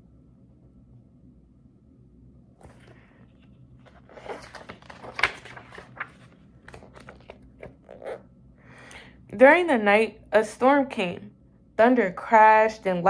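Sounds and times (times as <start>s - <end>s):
paper pages rustling: 2.6s - 8.2s.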